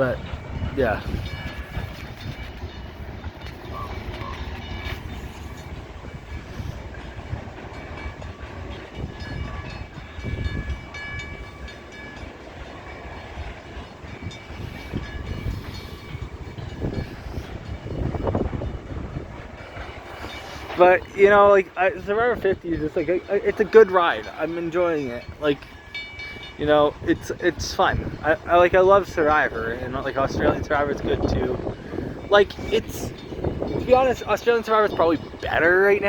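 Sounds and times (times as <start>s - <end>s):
freight train rumbling past: 0.0s - 36.0s
high ringing from wheels: 0.4s - 21.1s, 22.8s - 27.3s.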